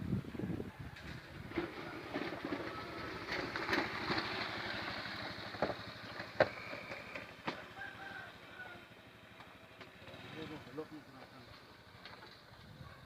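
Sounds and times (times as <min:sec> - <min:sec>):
wheels clacking over rail joints: 0:01.0 - 0:12.8
train rumbling: 0:01.1 - 0:07.8.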